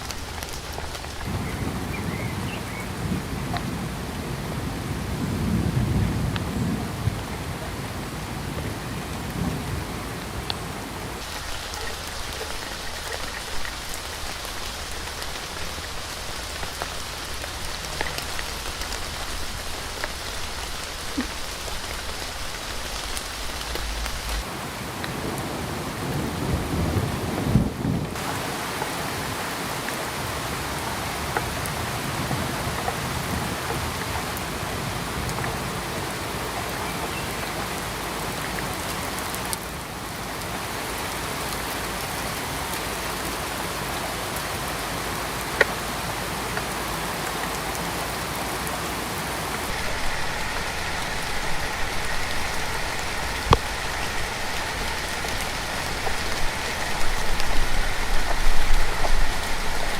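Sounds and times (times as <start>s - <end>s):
steady rain falling: 0.0s - 59.9s
low rumble: 11.5s - 24.4s.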